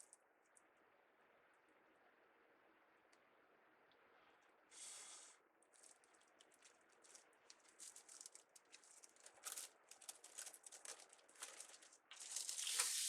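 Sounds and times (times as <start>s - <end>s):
craft materials rustling and clicking: 5.7s - 13.0s.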